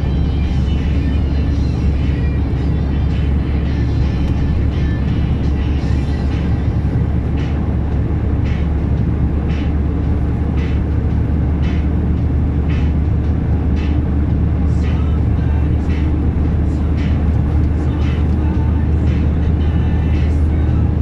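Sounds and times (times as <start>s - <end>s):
truck diesel engine droning: 0.0s - 21.0s.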